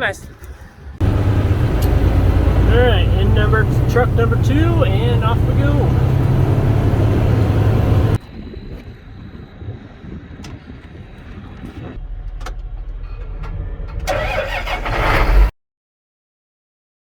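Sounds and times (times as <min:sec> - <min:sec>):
diesel truck engine rumbling: 0:01.0 - 0:08.2, 0:14.1 - 0:15.5
sharp clicks: 0:01.7 - 0:02.3.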